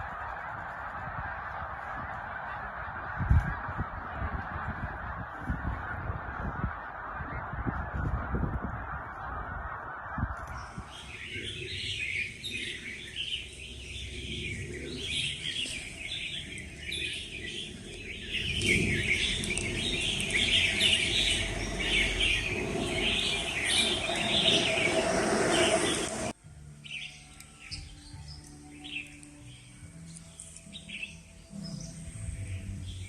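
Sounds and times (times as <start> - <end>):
low background rumble: 0.0 - 26.4
songbirds chirping and twittering: 0.0 - 33.0.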